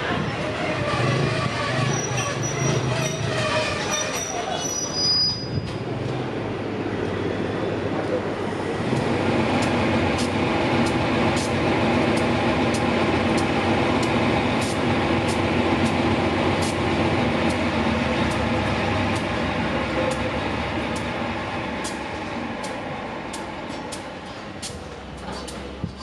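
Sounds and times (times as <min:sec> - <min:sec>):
train rumble: 0:00.0 - 0:26.0
wheels clicking over rail joints: 0:08.9 - 0:26.0.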